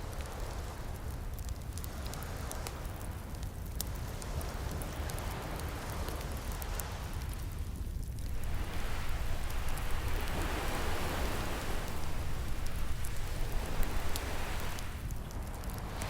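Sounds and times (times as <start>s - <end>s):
low rumble: 8.2s - 15.5s
ocean surf washing in: 8.2s - 16.0s
wood fire crackling and popping: 8.2s - 16.0s.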